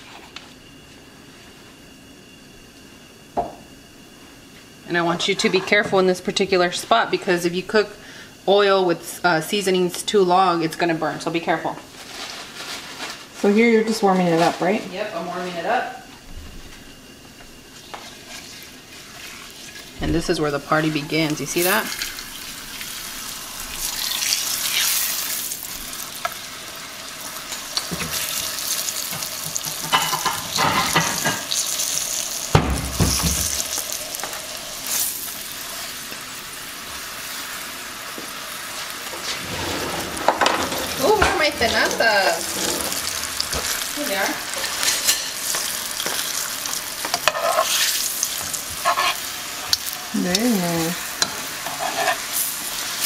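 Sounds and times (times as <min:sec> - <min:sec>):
tortillas sizzling in oil: 0:17.0 - 0:39.4, 0:40.2 - 0:53.0
tongs clicking and scraping: 0:48.7 - 0:50.5, 0:51.2 - 0:52.2.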